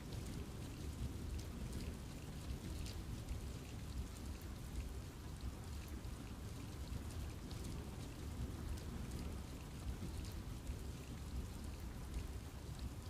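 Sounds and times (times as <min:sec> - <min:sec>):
rain falling on trees: 0:00.0 - 0:13.0.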